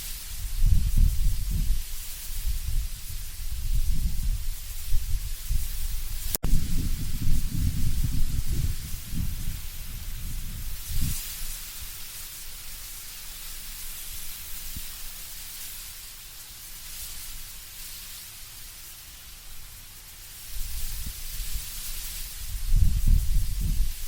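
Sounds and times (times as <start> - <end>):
leaves rustling in wind: 0.0 - 24.0
low wind rumble: 0.2 - 12.0, 20.5 - 24.0.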